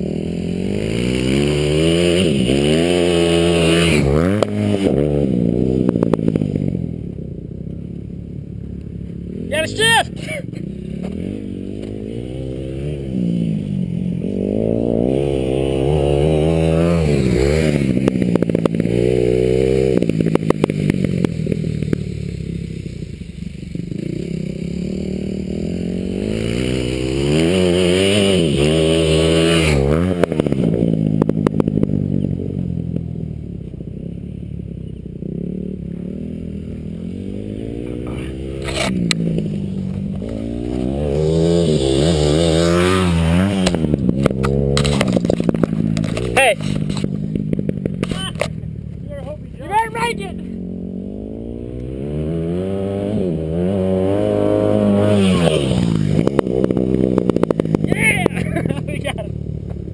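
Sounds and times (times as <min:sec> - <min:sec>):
dirt bike engine revving: 0:00.0 - 0:07.8, 0:08.4 - 0:59.9
rattles and clatter: 0:43.6 - 0:48.6.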